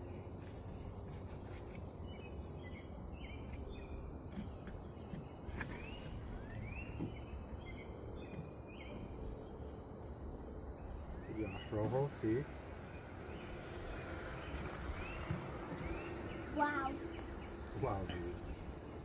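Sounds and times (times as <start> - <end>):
insects high-pitched drone: 7.2 - 15.2, 15.8 - 19.0.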